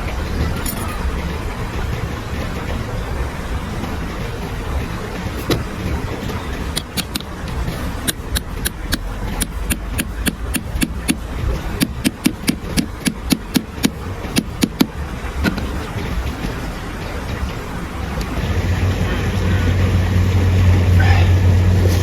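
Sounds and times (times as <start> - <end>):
steady low rumble: 0.0 - 22.0
rapid sharp knocks: 0.8 - 18.4.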